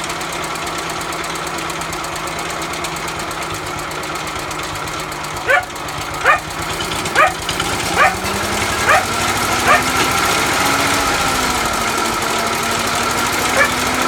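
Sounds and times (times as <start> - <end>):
lawnmower engine running: 0.0 - 14.0
dog yelping: 5.4 - 10.2, 13.4 - 14.0.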